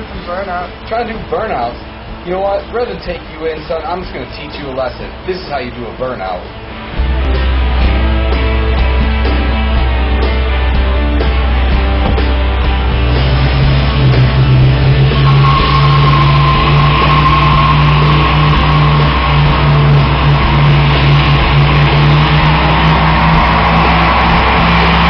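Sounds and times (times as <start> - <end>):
rock music: 0.0 - 25.0
car engine revving high: 6.5 - 25.0
tyres squealing: 13.2 - 25.0.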